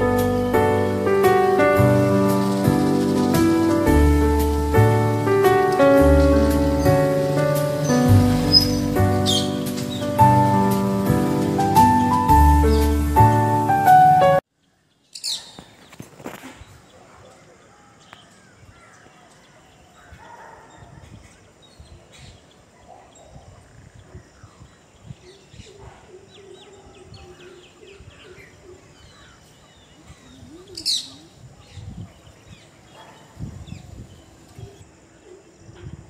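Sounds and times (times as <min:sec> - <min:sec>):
birds chirping: 0:00.0 - 0:36.0
loud shrill bird call: 0:06.2 - 0:10.6.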